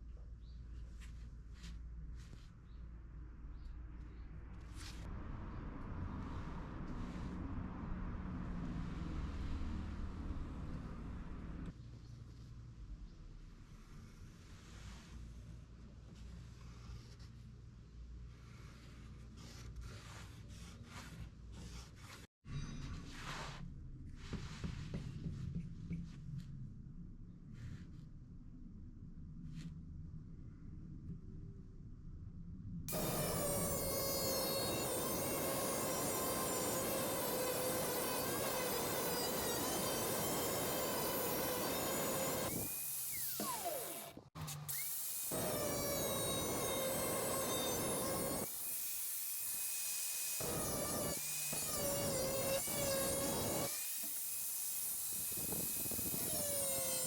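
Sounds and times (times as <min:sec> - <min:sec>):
electric power tool whining: 0:32.9 - 0:57.0.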